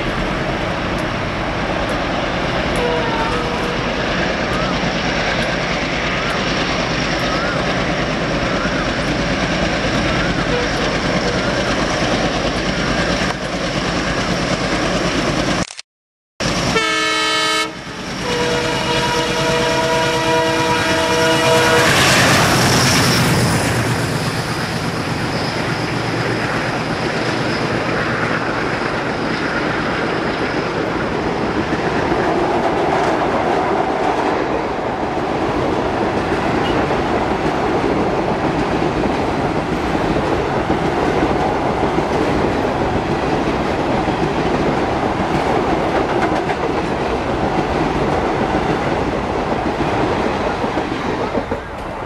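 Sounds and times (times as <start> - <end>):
steel wheels clattering on rails: 24.3 - 52.0.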